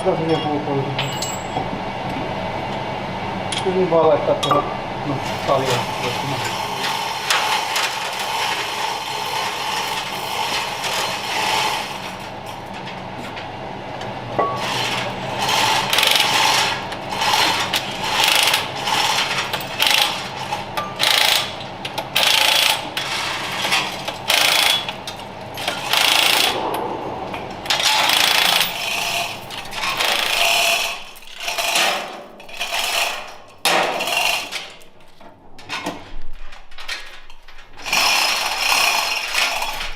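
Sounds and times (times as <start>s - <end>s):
power tool bursts: 27.7s - 32.0s.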